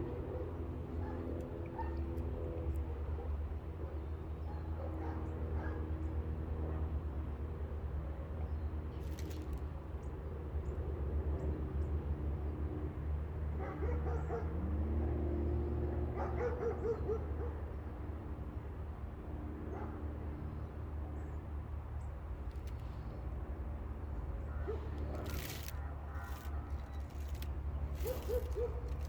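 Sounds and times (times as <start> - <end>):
steady low hum: 20.3 - 29.0.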